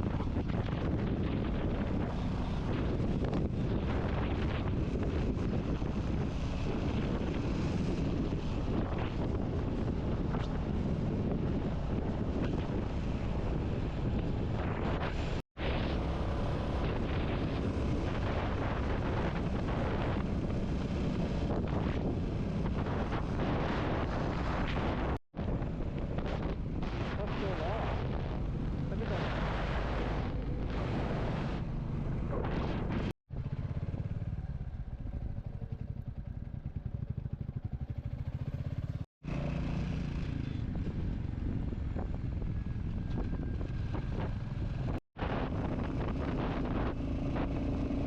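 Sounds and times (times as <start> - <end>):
road noise: 0.0 - 48.0
wind buffeting microphone: 0.0 - 48.0
motorcycle engine running: 31.5 - 48.0.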